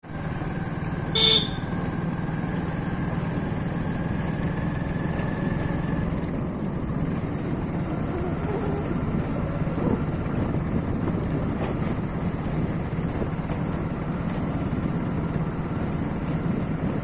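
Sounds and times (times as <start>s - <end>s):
motorcycle engine running: 0.0s - 17.0s
short horn beep: 1.2s - 1.8s.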